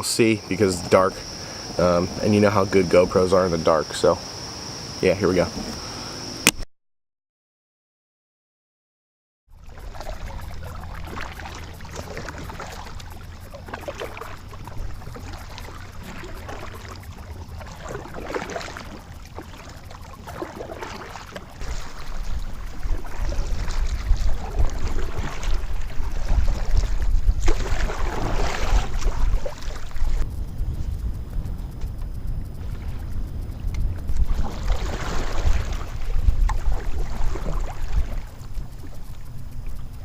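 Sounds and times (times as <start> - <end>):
wind rumble on microphone: 9.5 - 40.0
paddle splashing in water: 9.6 - 30.2, 34.1 - 39.6.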